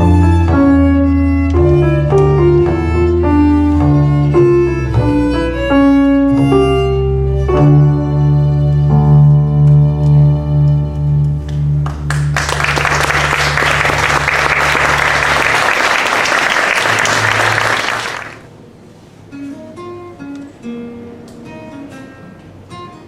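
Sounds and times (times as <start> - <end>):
plucked string instrument notes: 0.0 - 12.1
audience applauding: 11.8 - 18.4.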